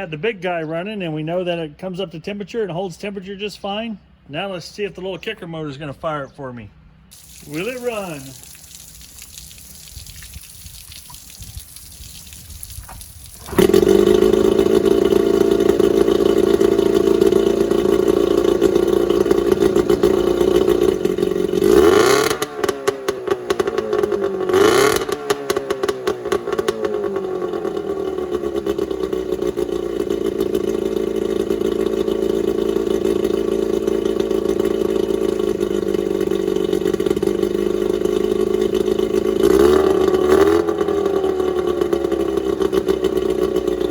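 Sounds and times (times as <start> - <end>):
outboard motor running: 7.1 - 22.4, 26.1 - 43.9.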